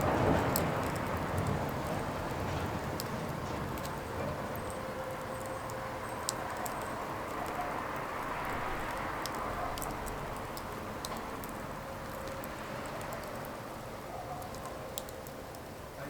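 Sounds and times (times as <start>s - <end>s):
firewood crackling and popping: 0.0s - 16.0s.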